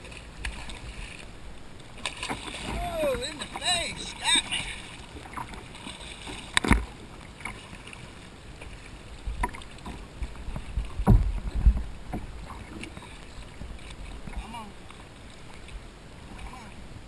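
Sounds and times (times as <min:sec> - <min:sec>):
wind rumble on microphone: 0:09.2 - 0:14.5.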